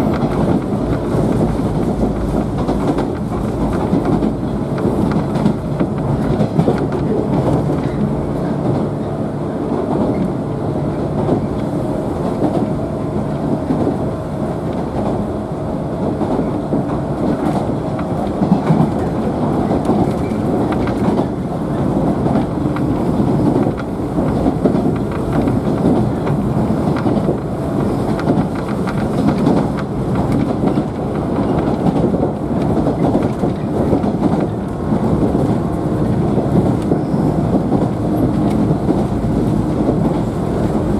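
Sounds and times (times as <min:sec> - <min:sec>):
rail joints clacking: 0:00.0 - 0:40.9
wheels rumbling on rail: 0:00.0 - 0:40.9.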